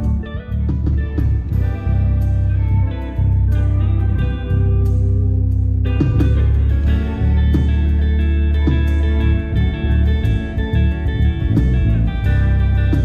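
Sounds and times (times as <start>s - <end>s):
bass line: 0.0s - 13.0s
drums: 0.0s - 13.0s
guitar: 0.0s - 13.0s.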